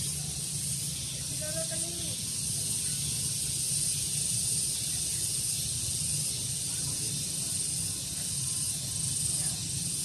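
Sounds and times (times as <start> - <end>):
high-pitched hiss: 0.0 - 10.0.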